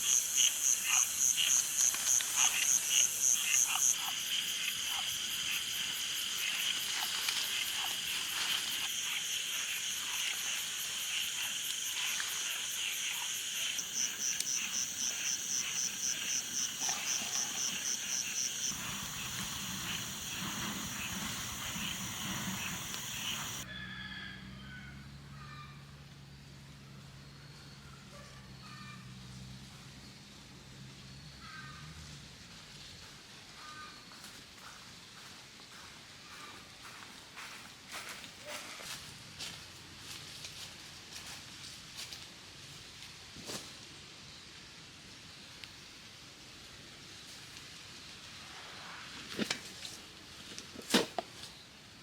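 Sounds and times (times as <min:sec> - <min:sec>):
frogs croaking: 0:00.0 - 0:23.6
insects chirping: 0:00.0 - 0:23.6.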